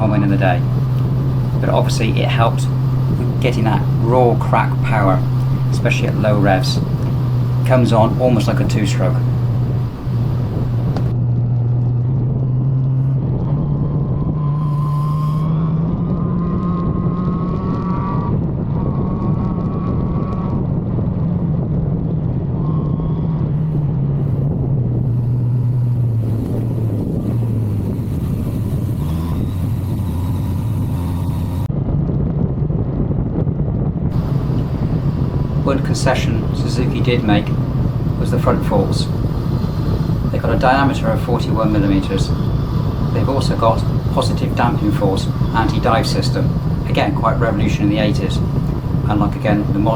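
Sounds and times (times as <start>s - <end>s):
motorcycle engine running: 0.0s - 11.9s, 24.1s - 31.7s, 34.1s - 49.9s
wind noise: 0.0s - 12.4s, 15.8s - 49.9s.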